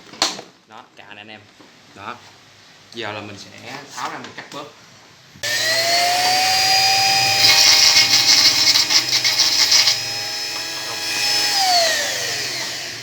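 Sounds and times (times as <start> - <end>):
power tool whining: 5.4 - 13.0
tool cutting plastic: 5.4 - 13.0.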